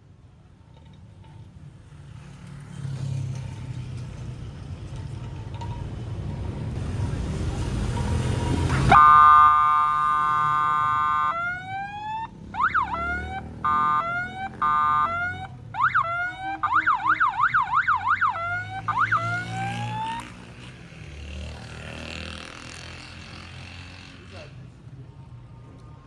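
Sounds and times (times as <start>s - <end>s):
electronic alarm siren: 8.9s - 20.2s.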